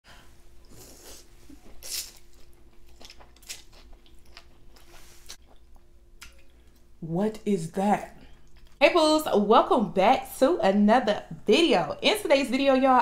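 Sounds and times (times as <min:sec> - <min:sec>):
person chewing crunchy food: 0:00.6 - 0:06.9.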